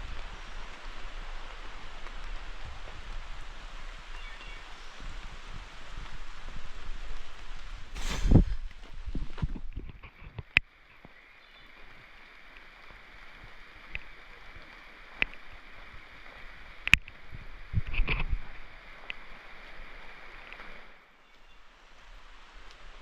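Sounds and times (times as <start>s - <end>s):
raindrops ticking close by: 0.0s - 7.9s, 8.6s - 23.0s
rain in the woods: 0.0s - 23.0s
low rumble: 8.0s - 9.4s.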